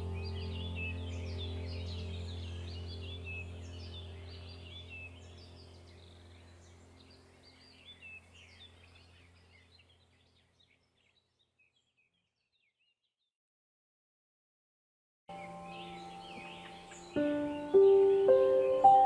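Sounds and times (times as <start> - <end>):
low steady hum: 0.0 - 10.3
wild birds chirping: 0.0 - 13.0, 15.3 - 19.0.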